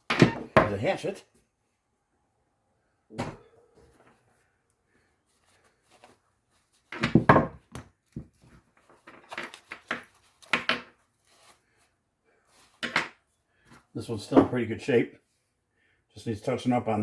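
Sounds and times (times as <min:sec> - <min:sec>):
hand tools knocking and clunking: 0:00.0 - 0:00.8.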